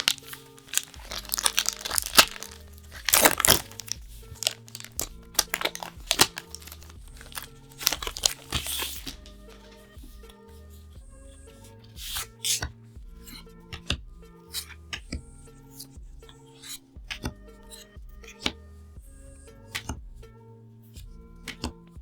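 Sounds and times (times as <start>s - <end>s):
crinkly packaging crackling: 0.0s - 9.9s
soft background music: 0.0s - 22.0s.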